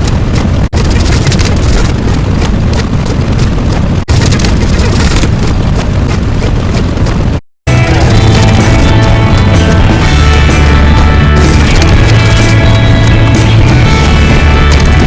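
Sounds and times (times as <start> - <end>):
loud continuous rumbling: 0.0 - 15.0.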